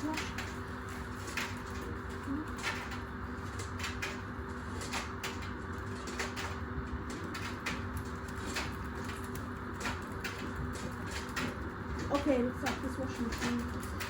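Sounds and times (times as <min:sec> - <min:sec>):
washing machine humming: 0:00.0 - 0:14.0.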